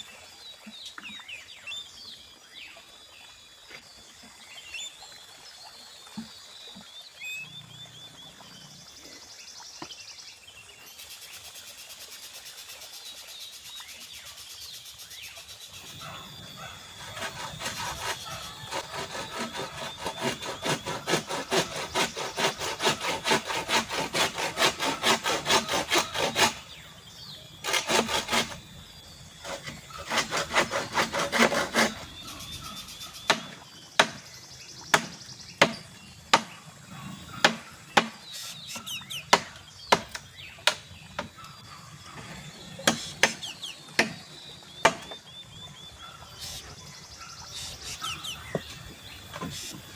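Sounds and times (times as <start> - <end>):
hand saw cutting bamboo: 16.9 - 26.8, 27.6 - 28.7, 29.4 - 34.2, 34.9 - 36.5, 37.4 - 41.3, 42.8 - 44.2, 46.4 - 46.7, 47.5 - 49.9
sharp wooden knocks: 33.3 - 34.3, 34.9 - 36.5, 37.4 - 38.2, 39.2 - 41.4, 42.8 - 44.2, 44.8 - 45.2.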